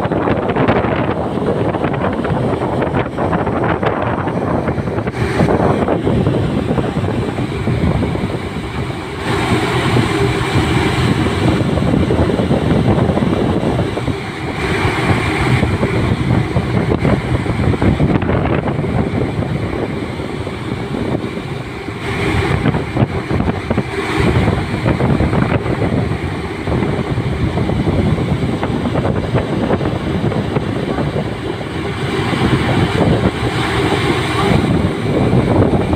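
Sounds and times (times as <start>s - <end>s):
ship rumbling at sea: 0.0s - 35.9s
wind buffeting microphone: 0.0s - 35.9s.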